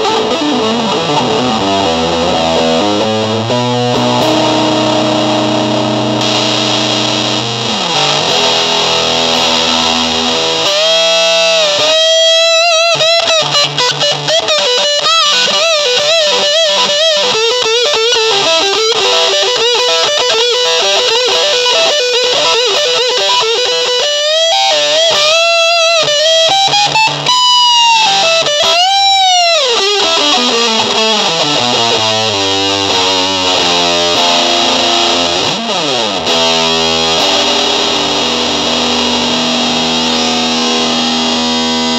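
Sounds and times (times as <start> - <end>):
distorted electric guitar lead: 0.0 - 41.9.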